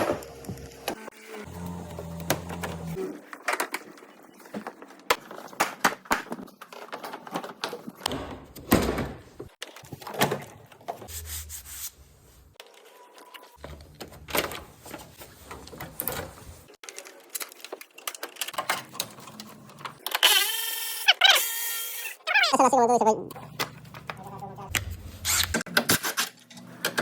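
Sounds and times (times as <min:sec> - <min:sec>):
small electric motor running: 0:00.8 - 0:03.0.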